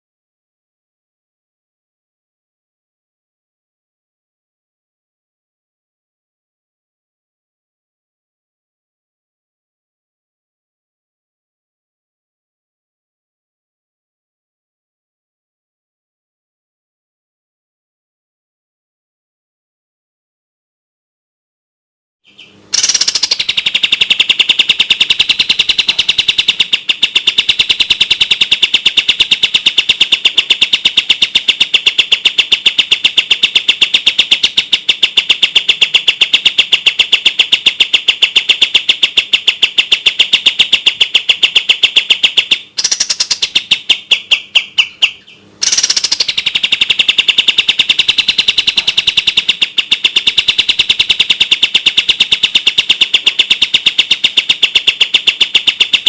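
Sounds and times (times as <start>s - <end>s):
songbird singing rapid high notes: 22.2s - 56.0s.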